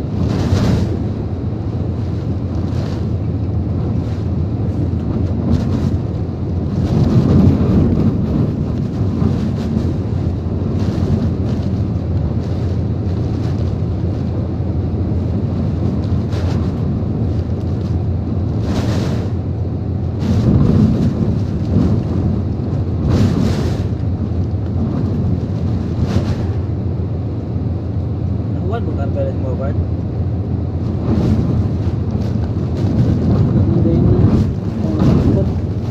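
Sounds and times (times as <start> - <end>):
strong wind buffeting: 0.0 - 35.9
wind blasting microphone: 0.0 - 35.9
wind-driven rain hissing: 30.7 - 35.9.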